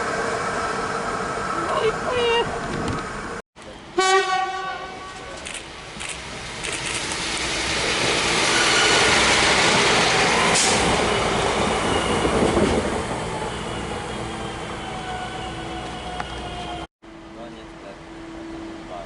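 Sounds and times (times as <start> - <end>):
train wheels rushing on rails: 5.1 - 16.9
wheels squealing: 8.0 - 16.8.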